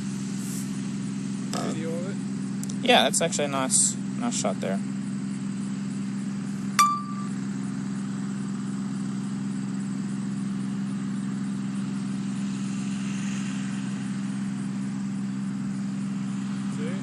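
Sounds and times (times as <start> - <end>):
low mechanical hum: 0.0 - 17.0
short electronic beep: 6.8 - 7.4.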